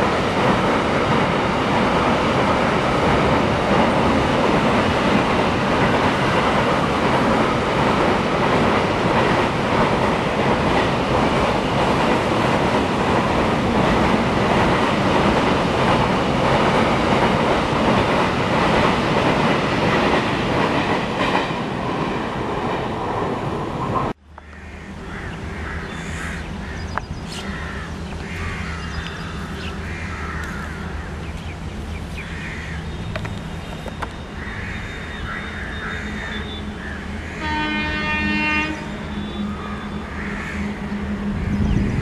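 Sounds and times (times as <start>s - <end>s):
bird calls: 24.4s - 37.6s
train horn: 37.3s - 42.0s.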